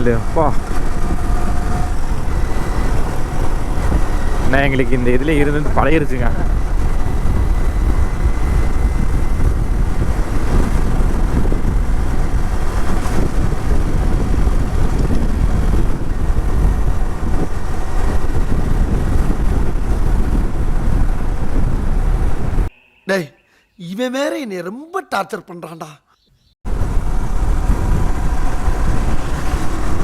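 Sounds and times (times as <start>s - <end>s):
motorcycle engine running: 0.0s - 22.7s
wind buffeting microphone: 0.0s - 22.7s, 26.6s - 30.0s.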